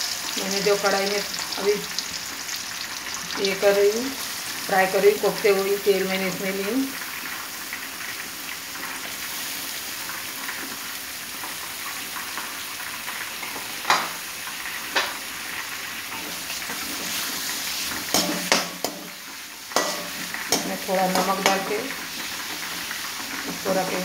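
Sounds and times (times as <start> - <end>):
onions sizzling in hot oil: 0.0 - 24.0
sharp knocks in pan: 13.8 - 14.2, 14.9 - 15.2, 18.1 - 19.2, 19.8 - 21.7
metal spatula scraping pan: 16.1 - 22.8.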